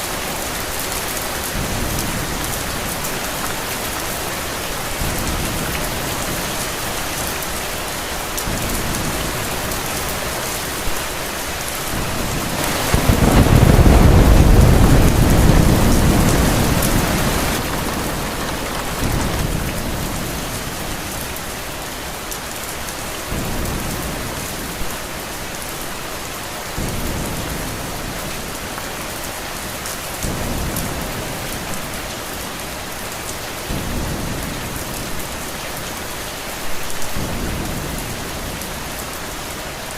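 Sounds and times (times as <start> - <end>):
steady rain: 0.0 - 39.9
thunder rumbling: 11.8 - 21.7.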